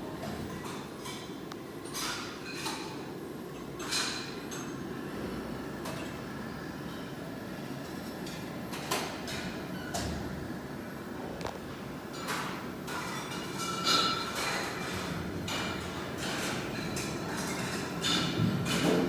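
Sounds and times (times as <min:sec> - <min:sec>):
tableware clinking: 0:12.1 - 0:18.9.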